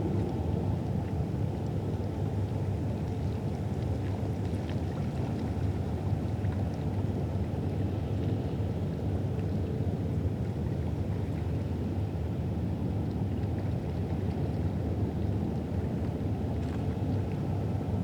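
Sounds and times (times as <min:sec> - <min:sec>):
low riverside rumble: 0:00.0 - 0:02.4.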